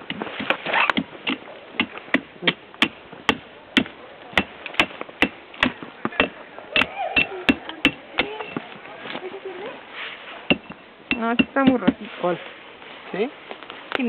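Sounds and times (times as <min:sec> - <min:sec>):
wood chopping strikes: 0:00.0 - 0:08.6, 0:10.5 - 0:12.1.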